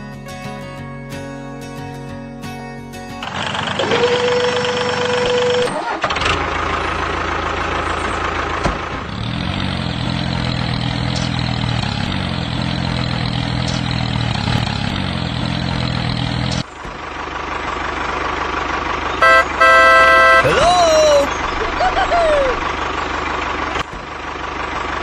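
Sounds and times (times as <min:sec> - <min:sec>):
engine idling: 0:03.2 - 0:25.0
loud horn-like tone: 0:19.2 - 0:20.8.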